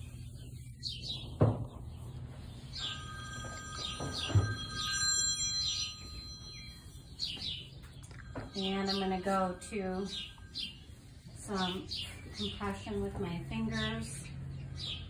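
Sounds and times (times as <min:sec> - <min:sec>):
small birds chirping: 0:00.0 - 0:15.0
steady ringing tone: 0:02.1 - 0:12.2.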